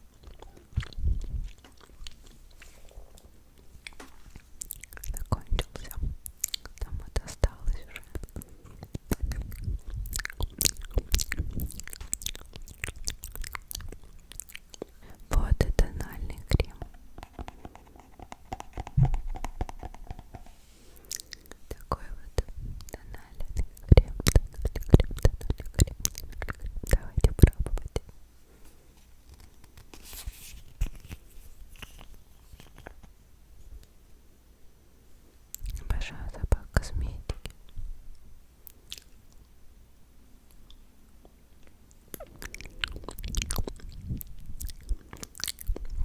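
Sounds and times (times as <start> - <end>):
wet mouth clicks and smacks: 0.1 - 2.7, 3.6 - 28.1, 35.5 - 37.8, 38.6 - 39.5, 40.5 - 46.0
scratchy rustle: 28.6 - 33.0.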